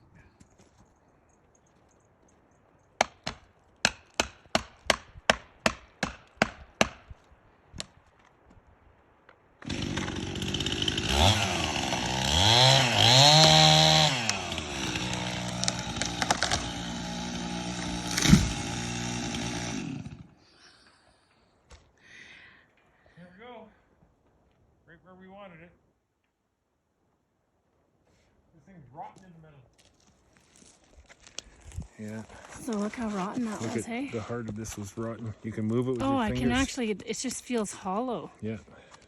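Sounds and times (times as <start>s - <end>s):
sharp wood crack: 3.0s - 8.5s, 9.2s - 20.3s
chainsaw cutting wood: 9.6s - 20.4s.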